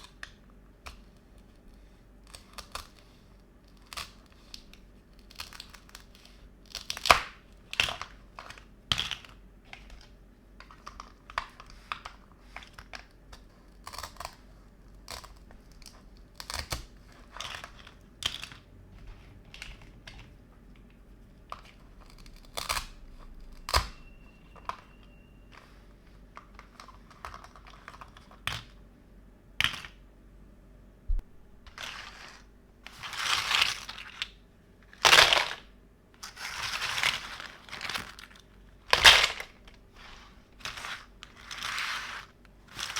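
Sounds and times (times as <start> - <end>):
plastic rustling and crinkling: 31.4 - 42.9.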